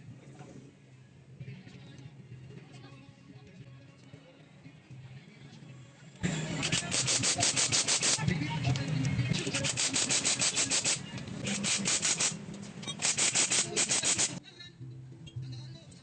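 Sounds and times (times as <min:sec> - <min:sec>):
hand rubbing back and forth: 0:06.7 - 0:08.2, 0:09.4 - 0:12.4, 0:13.0 - 0:14.4.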